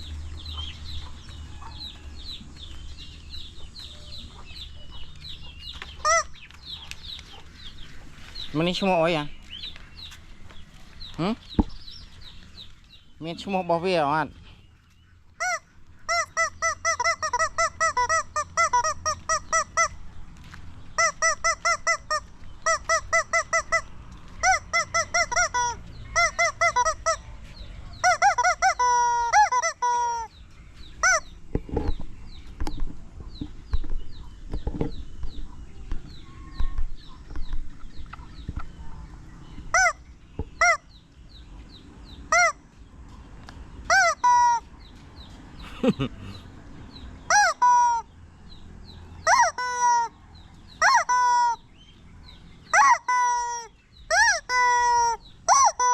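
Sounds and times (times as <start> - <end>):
rubber chicken toy squealing: 15.4 - 20.0, 24.4 - 27.2, 28.0 - 30.3, 43.9 - 44.6, 47.3 - 48.0, 49.2 - 50.1, 50.8 - 51.6, 52.7 - 55.9.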